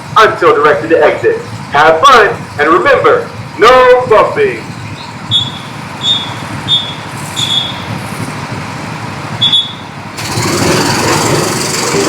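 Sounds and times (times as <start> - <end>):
go-kart motors: 2.4 - 12.0
short high beeps: 5.3 - 7.9.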